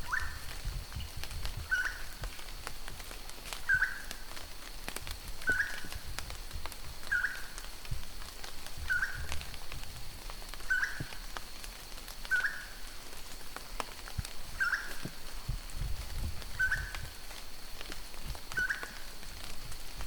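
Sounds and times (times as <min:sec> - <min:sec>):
insect drone: 0:00.0 - 0:20.0
bird call: 0:14.6 - 0:15.1, 0:16.6 - 0:17.1, 0:18.6 - 0:19.0.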